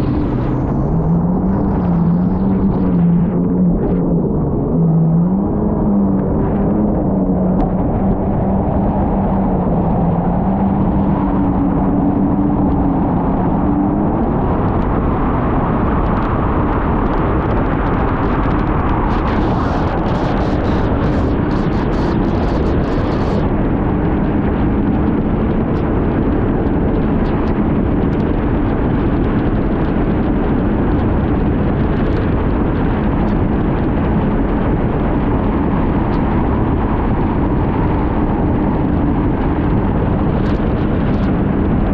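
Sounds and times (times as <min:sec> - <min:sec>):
sharp crackling noise: 0:00.0 - 0:05.4, 0:15.7 - 0:23.7, 0:28.8 - 0:41.9
jet ski engine at full throttle: 0:00.0 - 0:41.9
wind and water rush: 0:00.0 - 0:41.9.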